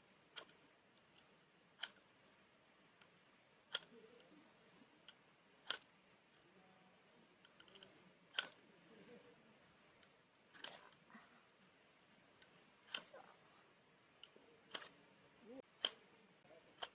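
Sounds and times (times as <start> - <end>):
sharp clicks: 0.3 - 2.1, 5.0 - 6.4, 7.4 - 8.7, 12.4 - 13.2, 14.1 - 16.9.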